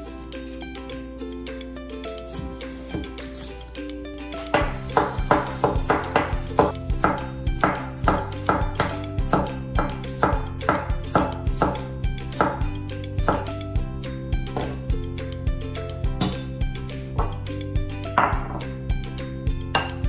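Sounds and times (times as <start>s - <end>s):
knife chopping on cutting board: 4.5s - 12.6s, 13.2s - 13.5s, 17.2s - 17.4s, 18.2s - 18.6s.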